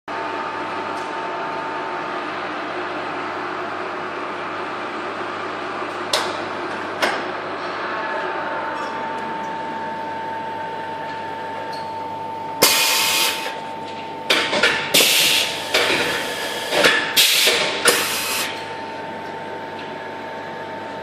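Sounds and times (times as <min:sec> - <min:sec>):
air hissing in sharp bursts: 0:12.6 - 0:13.5, 0:15.0 - 0:18.5.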